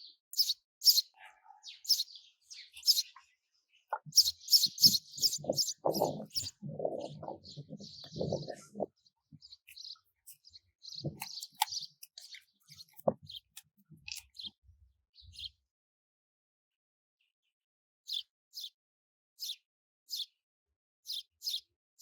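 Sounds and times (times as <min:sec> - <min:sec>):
birds chirping: 0:00.0 - 0:14.6.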